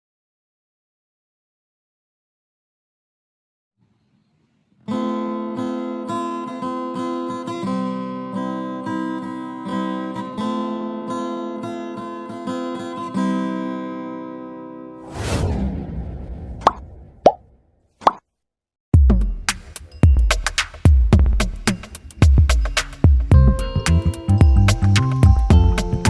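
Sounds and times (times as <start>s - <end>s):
acoustic guitar strummed and picked: 4.8s - 15.0s, 21.0s - 26.0s.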